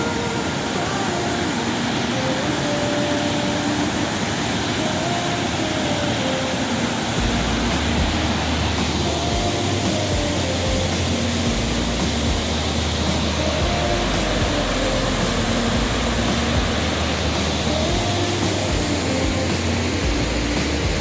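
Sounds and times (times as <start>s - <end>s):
large waterfall roaring: 0.0s - 21.0s.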